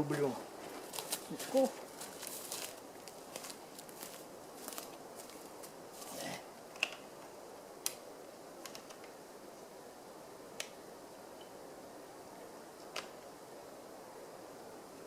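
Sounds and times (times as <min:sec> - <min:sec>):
dry branches snapping: 0:00.8 - 0:05.5, 0:07.8 - 0:08.0.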